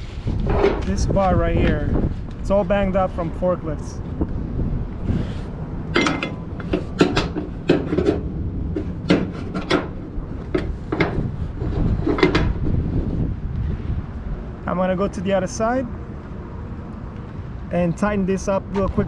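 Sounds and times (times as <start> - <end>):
strap hooks clanking on metal rail: 5.9 - 11.2.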